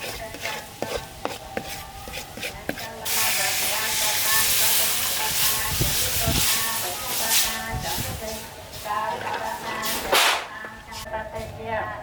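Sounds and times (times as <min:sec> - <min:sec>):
utensil clicking and scraping in pan: 0:00.0 - 0:03.6
loud steady hiss: 0:03.0 - 0:09.1.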